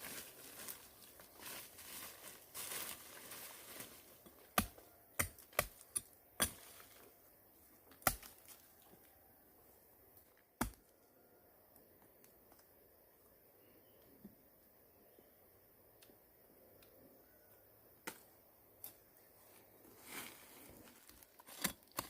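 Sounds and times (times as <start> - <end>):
rustling: 0.0 - 4.4, 19.4 - 22.0.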